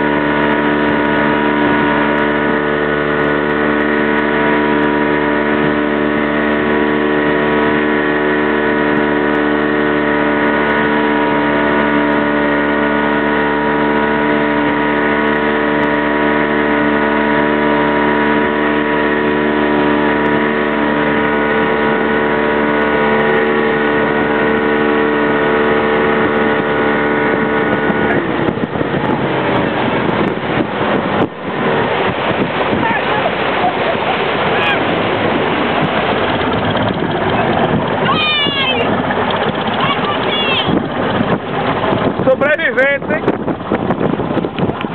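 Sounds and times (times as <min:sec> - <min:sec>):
motorboat engine running: 0:00.0 - 0:44.9
water noise: 0:00.0 - 0:44.9
rough wind noise: 0:13.1 - 0:44.9.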